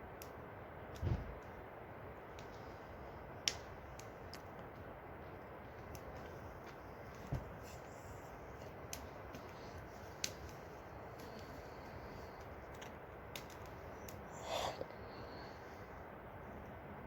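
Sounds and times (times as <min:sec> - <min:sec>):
faint background noise: 0:00.0 - 0:17.0
rustle: 0:00.0 - 0:17.0
light clicks and taps: 0:03.4 - 0:07.9, 0:08.5 - 0:11.6, 0:12.2 - 0:14.2.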